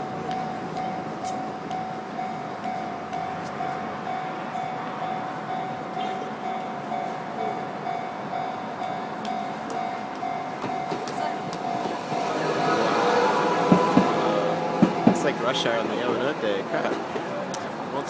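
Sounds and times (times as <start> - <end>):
level crossing bell ringing: 0.0 - 12.8
streetcar rumble: 0.0 - 18.0.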